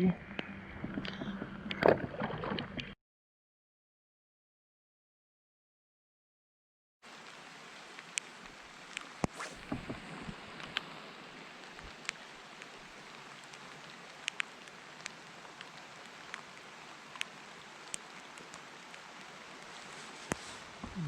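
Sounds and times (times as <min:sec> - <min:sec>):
rain falling on water: 0:07.0 - 0:21.0.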